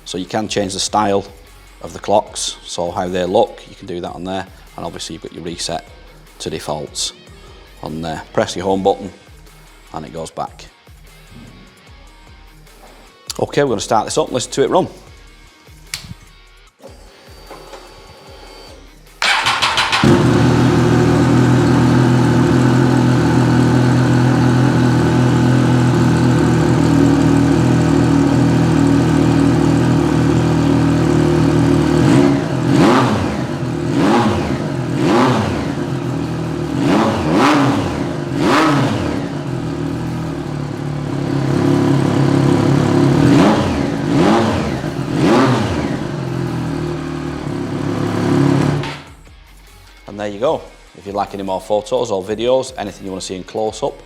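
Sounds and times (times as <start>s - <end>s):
engine revving: 19.2s - 49.1s
motorcycle engine idling: 19.2s - 49.1s
motorcycle engine starting: 19.2s - 49.2s.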